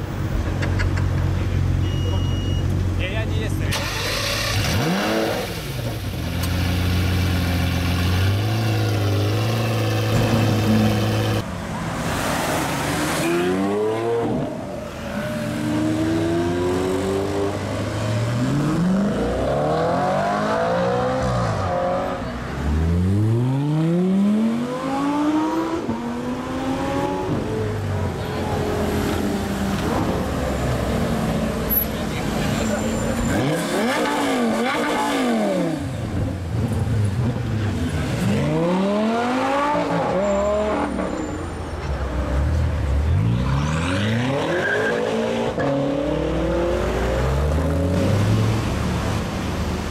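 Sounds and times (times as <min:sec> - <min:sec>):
car engine revving and accelerating: 0:03.8 - 0:11.4, 0:12.0 - 0:27.8, 0:33.2 - 0:41.1, 0:43.0 - 0:49.9.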